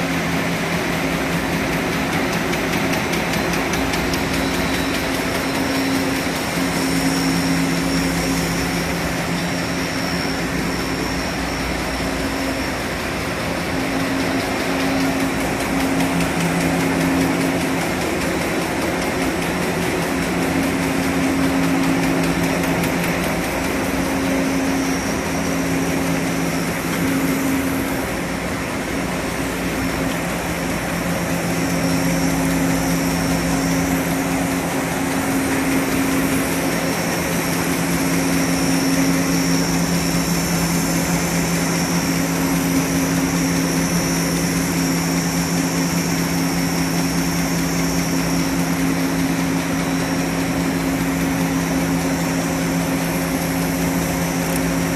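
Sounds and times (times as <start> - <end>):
machine humming and rushing: 0.0 - 54.9
faint high whine: 4.3 - 17.5.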